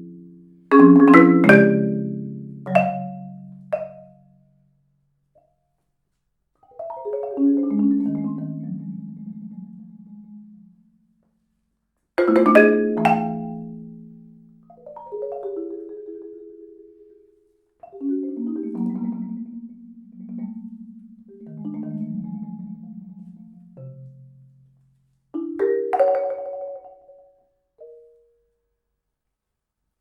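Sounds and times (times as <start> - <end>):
marimba rolled chords: 0.0 - 4.3, 6.8 - 10.8, 12.2 - 17.1, 17.9 - 24.5, 25.4 - 27.3.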